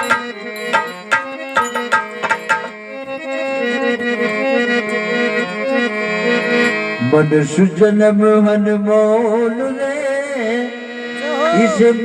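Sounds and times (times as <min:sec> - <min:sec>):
hand drum strokes: 0:00.0 - 0:02.8
sustained reed instrument melody: 0:00.0 - 0:07.6.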